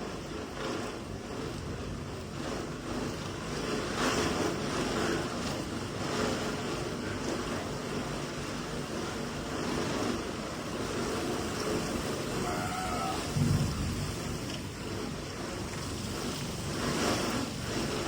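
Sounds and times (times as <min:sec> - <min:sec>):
wind on microphone: 0:12.3 - 0:15.2.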